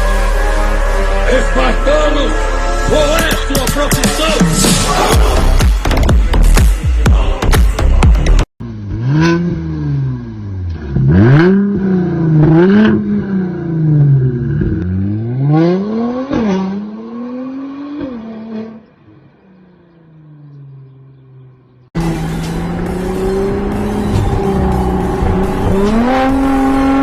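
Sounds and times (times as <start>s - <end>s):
car engine revving and idling: 8.6s - 27.0s.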